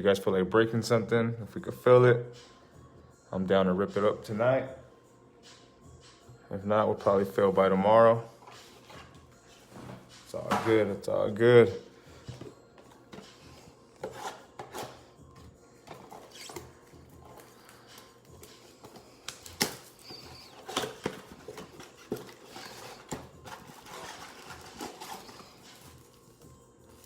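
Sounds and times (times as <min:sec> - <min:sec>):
cards rustling: 0:15.8 - 0:27.0.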